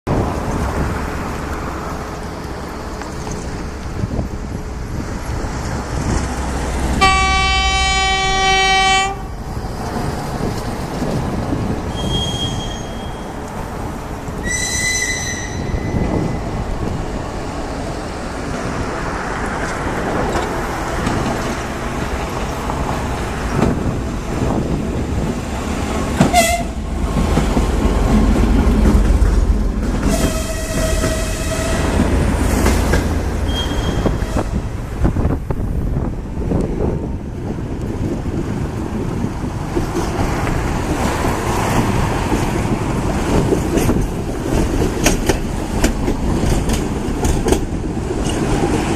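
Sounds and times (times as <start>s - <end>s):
diesel locomotive engine rumble: 0.1s - 48.9s
train horn: 7.0s - 9.4s, 14.4s - 16.3s, 26.2s - 26.8s, 30.0s - 32.1s, 33.5s - 34.7s.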